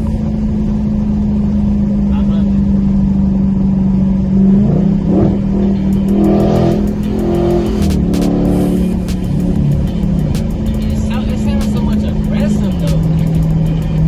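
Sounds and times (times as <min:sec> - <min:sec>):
loud car engine idling: 0:05.4 - 0:14.0
sharp clicks: 0:05.9 - 0:14.0.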